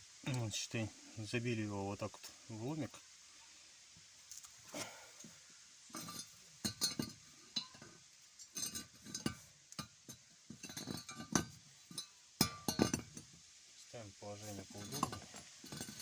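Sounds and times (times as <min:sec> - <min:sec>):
metal tools clinking: 0:05.9 - 0:13.3, 0:14.7 - 0:16.0.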